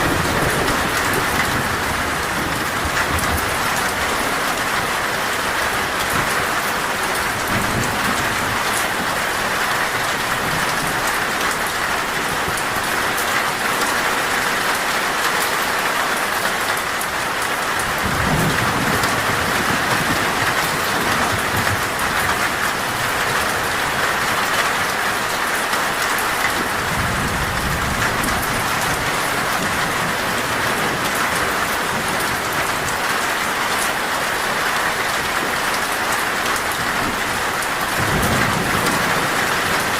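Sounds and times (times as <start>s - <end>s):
heavy rain on a metal roof: 0.0s - 39.9s
low rolls of thunder: 17.9s - 22.4s, 37.8s - 39.9s.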